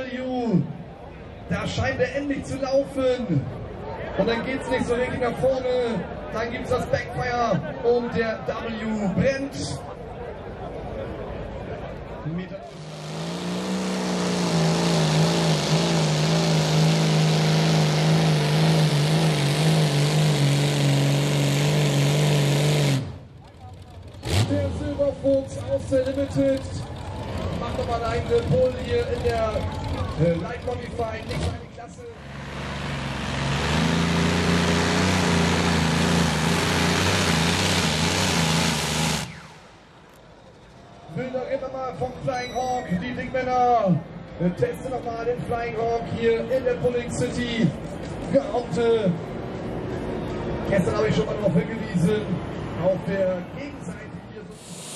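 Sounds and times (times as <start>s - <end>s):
tractor engine running flat out: 12.6s - 40.9s, 54.5s - 54.9s.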